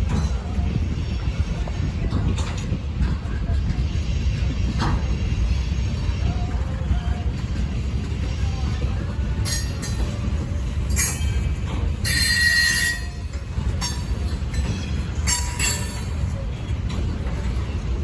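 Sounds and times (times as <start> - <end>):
freight train cars rumbling: 0.0 - 18.0
high-pitched wheel squeals: 10.9 - 14.0.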